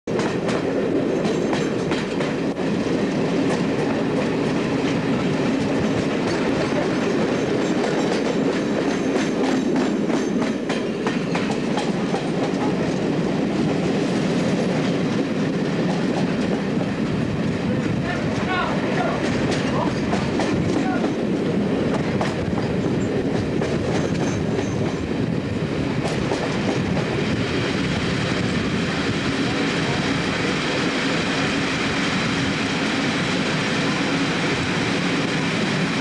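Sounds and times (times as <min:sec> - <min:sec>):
wheels clicking over rail joints: 0:00.1 - 0:02.5, 0:21.9 - 0:25.0
train running rumble: 0:00.1 - 0:36.0.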